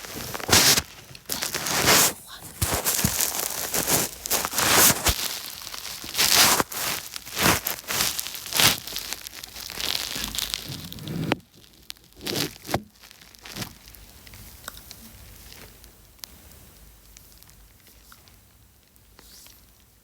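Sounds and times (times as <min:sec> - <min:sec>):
rustling and crinkling: 0:00.0 - 0:19.9
low hiss: 0:14.0 - 0:20.0.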